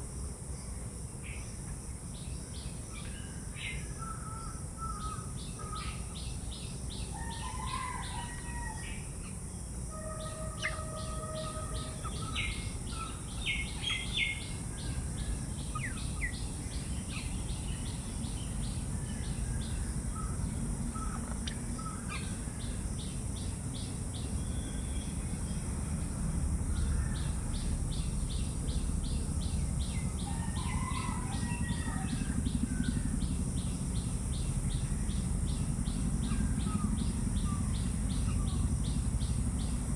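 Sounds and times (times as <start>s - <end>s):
low rumbling background noise: 0.0s - 39.9s
birds chirping and calling: 10.2s - 25.2s, 26.7s - 39.8s.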